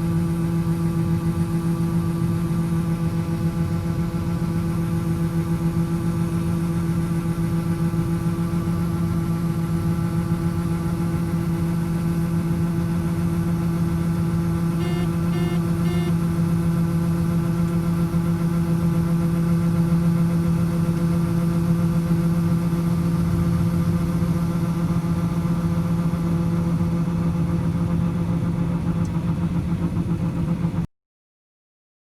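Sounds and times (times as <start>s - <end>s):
machinery engine humming: 13.8s - 16.5s.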